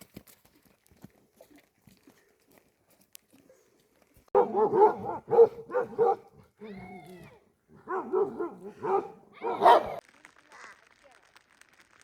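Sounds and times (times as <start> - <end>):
dog barking: 4.3 - 6.3, 7.8 - 10.0.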